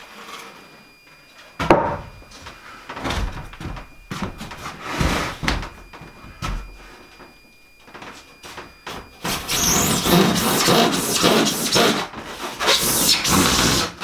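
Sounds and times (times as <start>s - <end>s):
wooden knocks and clunks: 1.6s - 7.3s
wood scraping against wood: 4.4s - 5.5s.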